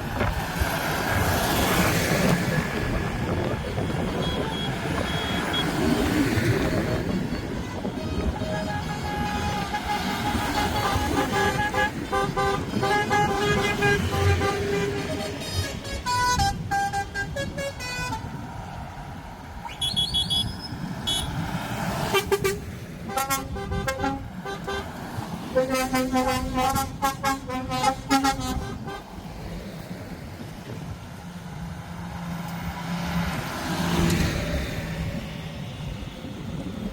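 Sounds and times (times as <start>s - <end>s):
rumble of engines: 0.0s - 36.9s
vehicle horns blasting: 3.2s - 18.4s, 19.6s - 29.2s.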